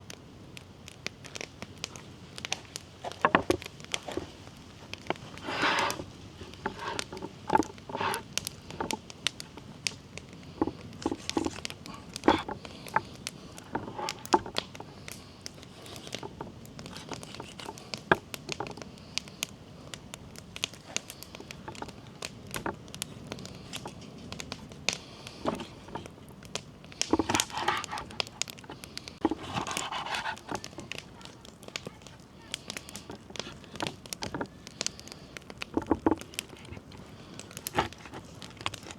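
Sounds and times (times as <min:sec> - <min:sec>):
crackling and rustling: 0:00.0 - 0:38.9
sharp clicks and knocks: 0:02.4 - 0:04.3, 0:04.9 - 0:10.0, 0:10.6 - 0:15.1, 0:20.6 - 0:32.1, 0:32.7 - 0:38.9.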